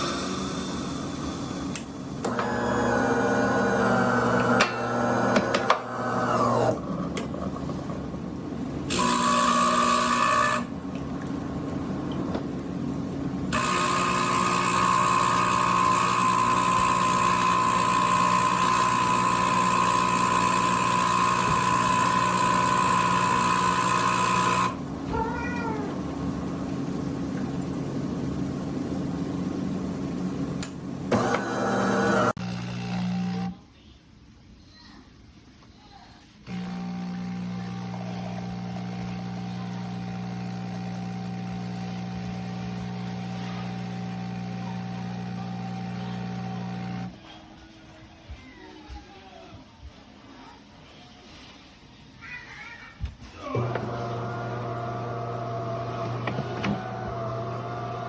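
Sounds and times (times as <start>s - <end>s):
espresso machine motor and pump: 1.1s - 12.5s, 13.2s - 27.7s, 29.0s - 33.6s, 36.4s - 47.2s, 53.4s - 58.0s.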